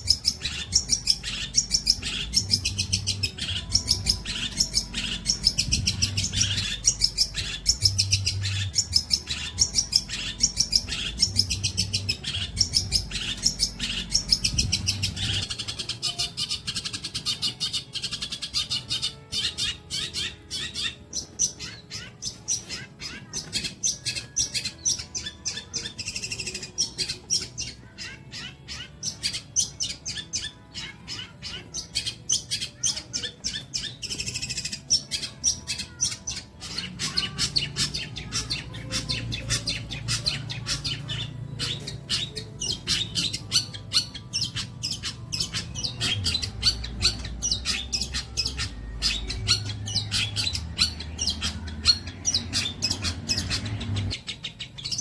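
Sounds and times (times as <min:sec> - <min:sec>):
bird singing rapid chirps: 0:00.0 - 0:55.0.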